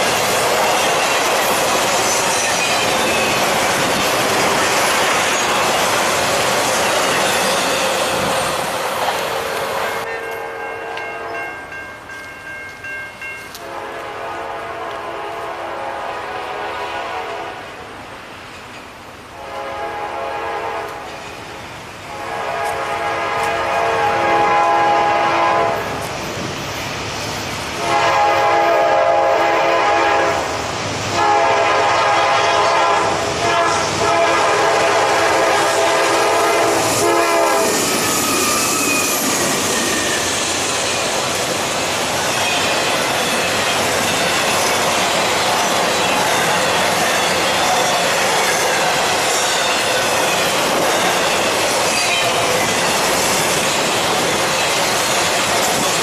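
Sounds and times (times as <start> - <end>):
train wheels clattering and squealing: 0.0 - 13.6, 18.5 - 19.0, 20.9 - 21.7, 36.4 - 56.0
locomotive air horn blasts: 13.6 - 17.9, 19.4 - 21.1, 22.1 - 26.0, 27.8 - 30.5, 31.1 - 37.9.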